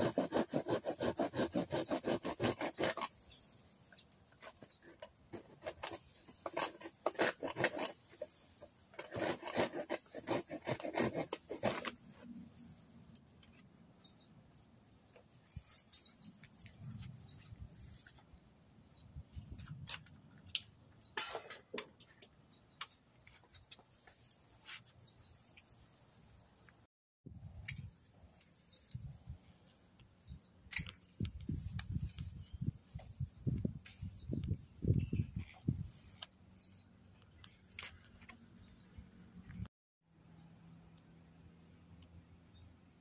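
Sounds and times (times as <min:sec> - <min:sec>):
bird chirping: 0:00.9 - 0:06.8, 0:13.9 - 0:19.8, 0:22.2 - 0:25.6, 0:34.0 - 0:39.6.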